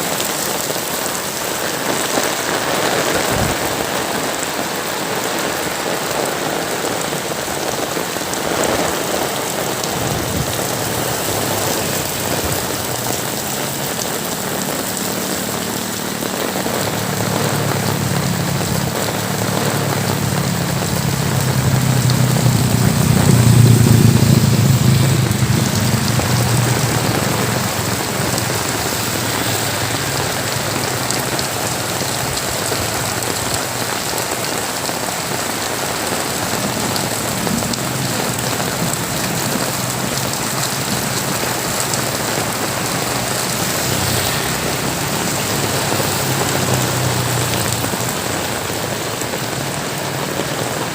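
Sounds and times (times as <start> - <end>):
heavy rain pouring: 0.0 - 50.9
low rumble: 20.1 - 28.8.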